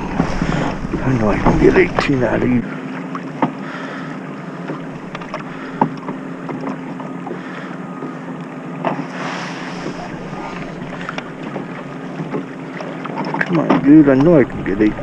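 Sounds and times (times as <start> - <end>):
wind buffeting microphone: 0.0 - 2.8, 13.8 - 15.0
water lapping against kayak hull: 0.0 - 15.0
light clicks and knocks: 11.0 - 14.4.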